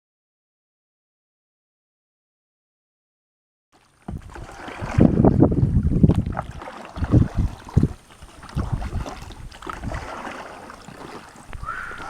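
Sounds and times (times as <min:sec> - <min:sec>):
wind buffeting microphone: 0:04.1 - 0:12.0.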